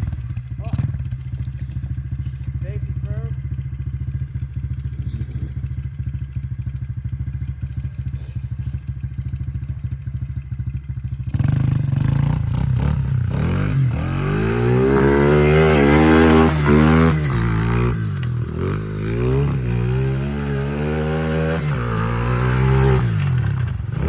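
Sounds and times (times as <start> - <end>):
motorbike engine idling and revving: 0.0 - 24.0.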